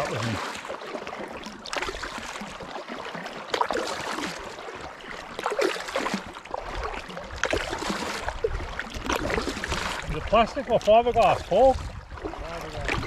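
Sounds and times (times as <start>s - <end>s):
kayak paddle splashing: 0.0s - 13.0s
water trickling and lapping: 0.0s - 13.0s.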